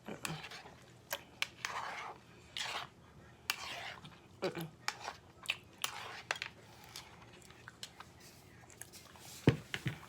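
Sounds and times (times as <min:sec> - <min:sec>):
chewing: 0:03.5 - 0:09.2.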